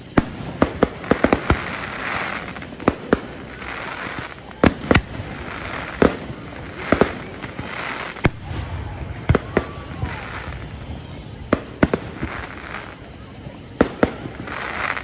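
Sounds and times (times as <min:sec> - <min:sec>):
crackling hiss of fireworks: 0:00.0 - 0:15.0.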